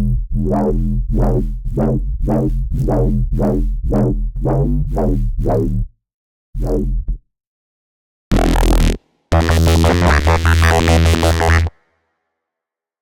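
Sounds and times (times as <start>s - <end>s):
synthesizer bass repeated note: 0.0s - 5.9s, 8.3s - 11.8s
steady deep bass: 0.0s - 6.0s, 6.6s - 7.2s, 8.3s - 11.7s.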